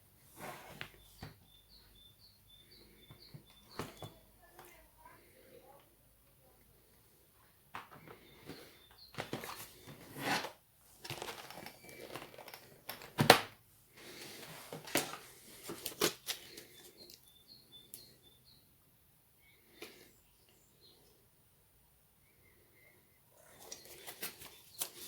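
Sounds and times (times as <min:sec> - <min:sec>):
rustling and crinkling: 0:07.8 - 0:17.2, 0:23.4 - 0:25.0.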